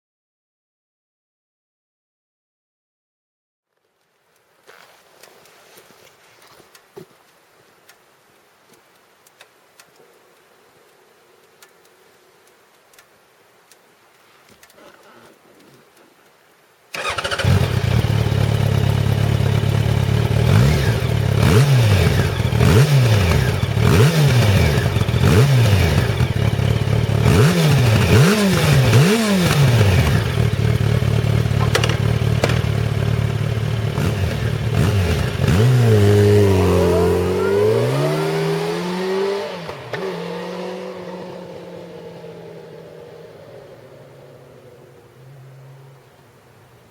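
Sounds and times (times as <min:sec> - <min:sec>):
motorcycle engine revving: 0:17.0 - 0:46.2.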